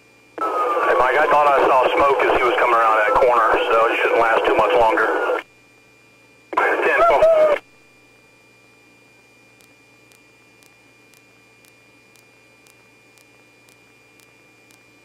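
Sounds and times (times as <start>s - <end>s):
faint electronic hiss and hum: 0.0s - 15.0s
faint ticks: 9.6s - 14.8s.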